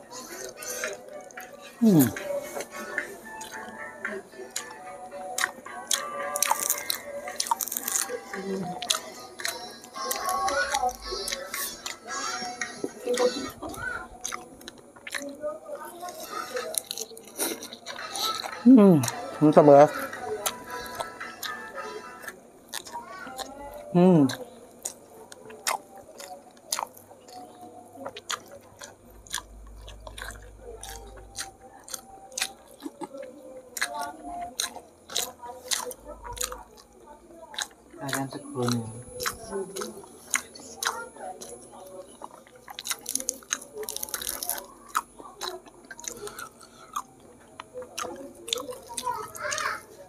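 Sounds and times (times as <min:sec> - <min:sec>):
person chewing with mouth full: 0:00.0 - 0:50.0
wet mouth clicks: 0:37.6 - 0:41.6.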